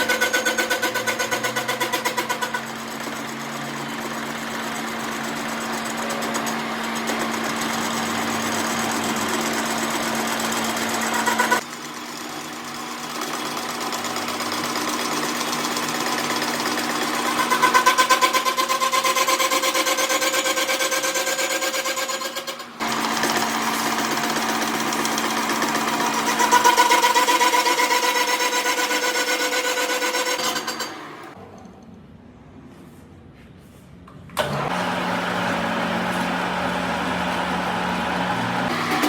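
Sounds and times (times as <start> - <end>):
workshop machine motor humming: 34.4 - 39.0.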